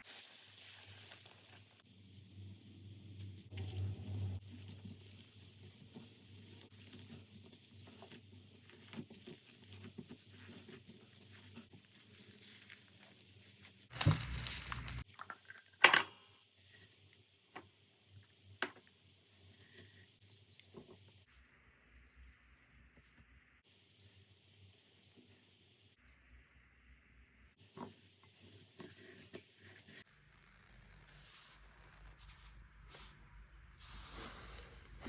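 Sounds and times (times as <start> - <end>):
slime crackling and crinkling: 0.0 - 1.8, 11.4 - 15.1.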